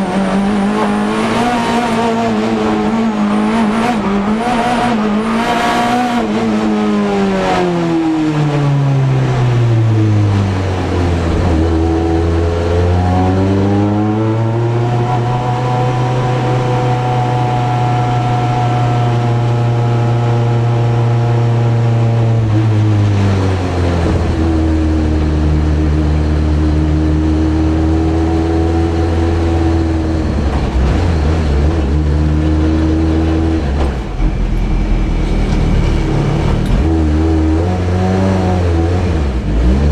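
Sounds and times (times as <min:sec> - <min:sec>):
race car engine from cockpit: 0:00.0 - 0:39.9.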